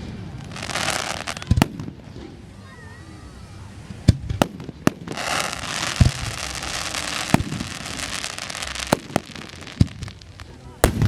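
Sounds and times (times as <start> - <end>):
crackling fizz of fireworks: 0.0 - 11.0
fireworks booming: 0.0 - 11.0.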